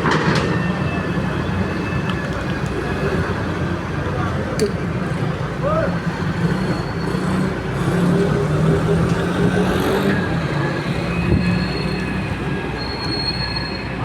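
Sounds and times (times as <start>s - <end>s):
excavator diesel engine: 0.0s - 14.0s
high-pitched metallic squeal: 6.4s - 7.5s, 10.1s - 14.0s.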